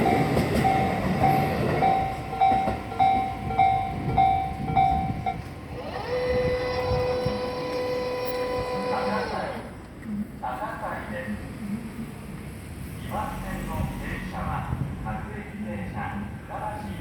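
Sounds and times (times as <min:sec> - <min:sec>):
level-crossing warning bell: 0:00.0 - 0:09.1
electric train rumble: 0:00.0 - 0:09.9.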